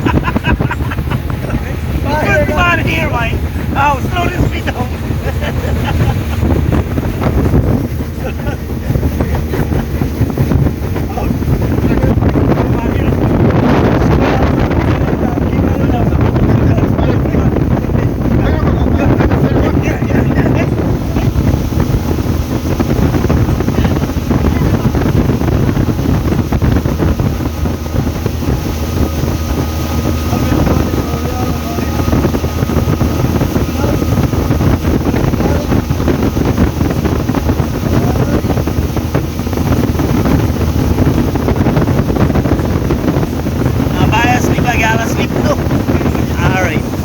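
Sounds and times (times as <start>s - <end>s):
motorboat engine running: 0.0s - 47.0s
water rushing along hull: 0.0s - 47.0s
wind buffeting microphone: 0.0s - 47.0s.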